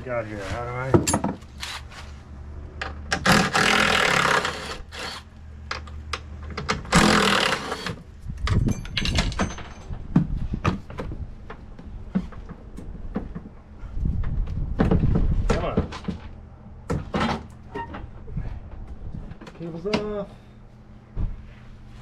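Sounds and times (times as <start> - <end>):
hissing rasping mechanical noise: 2.8 - 8.1.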